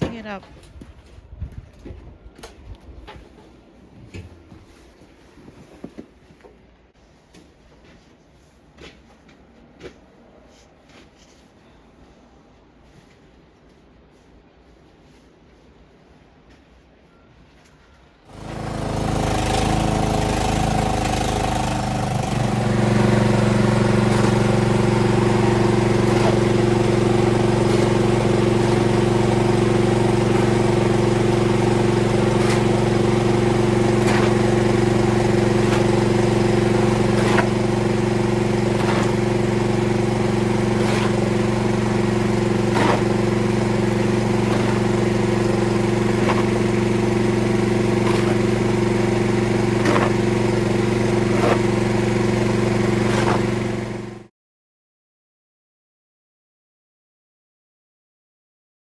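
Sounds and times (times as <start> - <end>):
snowblower engine running: 18.3 - 54.3.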